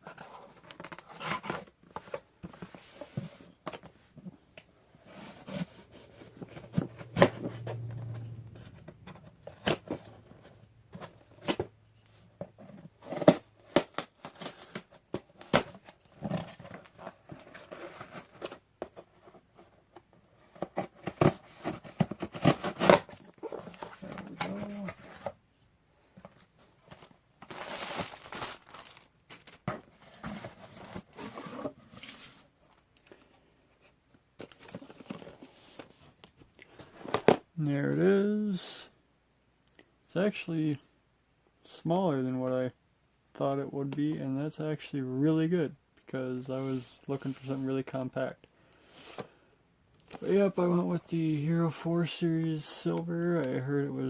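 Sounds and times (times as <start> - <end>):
low hum: 5.9 - 11.0
cardboard box rustling and tearing: 20.6 - 25.4, 26.9 - 32.4.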